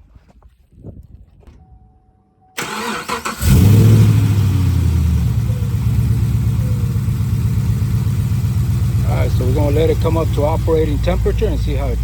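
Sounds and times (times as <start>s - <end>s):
starter motor cranking: 2.6s - 4.4s
car engine starting and idling: 2.6s - 12.0s.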